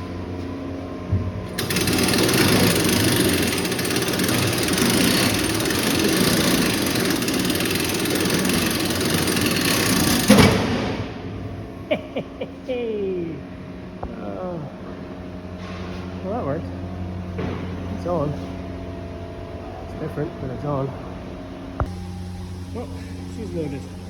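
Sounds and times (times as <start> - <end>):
mechanical grinding rattle: 1.5 - 10.8.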